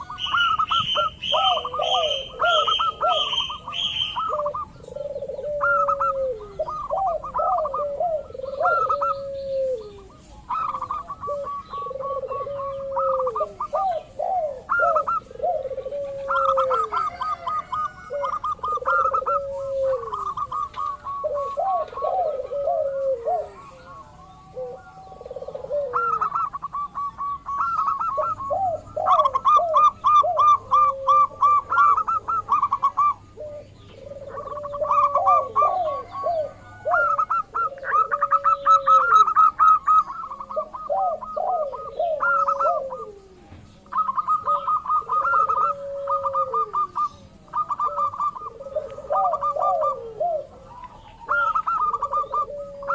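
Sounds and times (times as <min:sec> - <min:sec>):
doves singing: 0:00.0 - 0:52.9.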